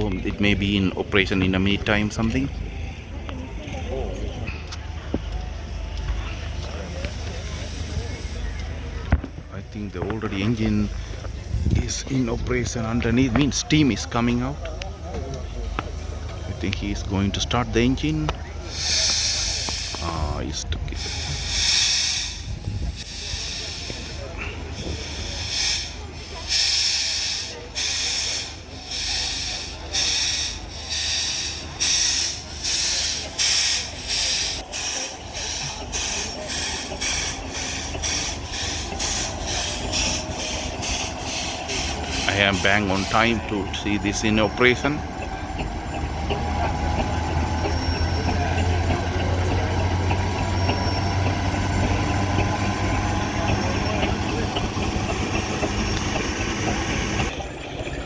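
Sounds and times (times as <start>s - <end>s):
steam engine hissing chuffs: 5.6s - 9.1s, 18.5s - 58.0s.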